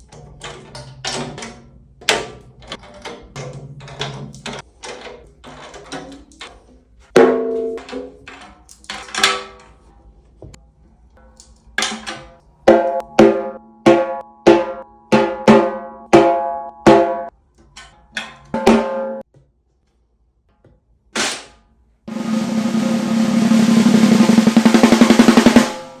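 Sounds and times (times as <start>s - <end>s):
snare drum roll: 22.1s - 26.0s
snare drum strokes: 22.1s - 26.0s.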